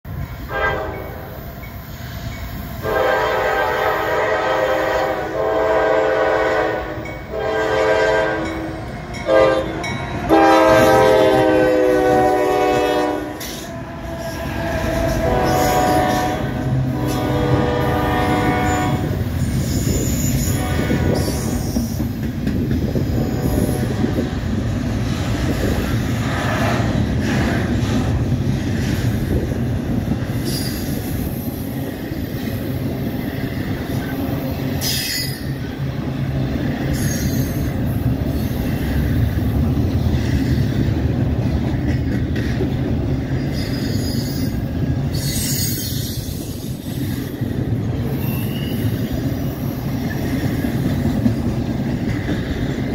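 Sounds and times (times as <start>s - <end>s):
train wheels rumbling on rails: 0.0s - 52.9s
high-pitched wheel squeals: 19.4s - 22.0s, 43.5s - 46.5s, 48.1s - 50.2s.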